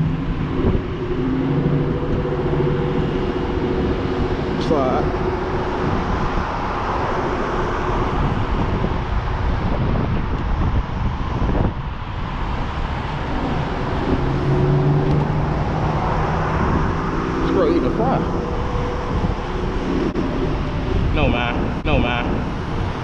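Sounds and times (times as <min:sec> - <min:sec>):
low steady hum: 0:00.0 - 0:11.2
wind buffeting microphone: 0:00.0 - 0:23.0.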